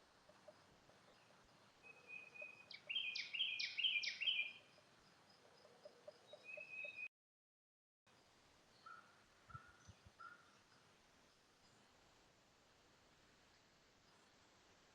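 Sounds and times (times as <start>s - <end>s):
songbird singing: 0.0s - 7.1s, 8.1s - 12.2s.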